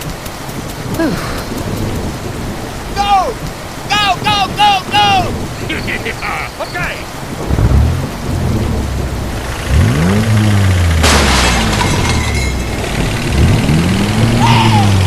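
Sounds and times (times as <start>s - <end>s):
crash-like burst: 11.0s - 13.8s.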